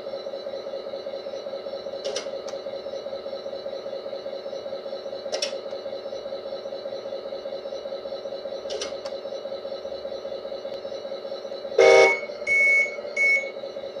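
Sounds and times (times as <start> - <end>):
diesel engine idling: 0.1 - 14.0
loud horn blast: 11.8 - 12.3.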